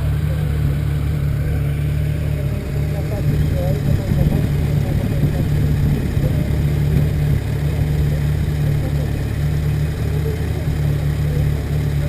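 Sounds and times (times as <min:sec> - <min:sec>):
motorcycle engine running: 0:00.0 - 0:12.0
wind rumble on microphone: 0:03.0 - 0:09.0.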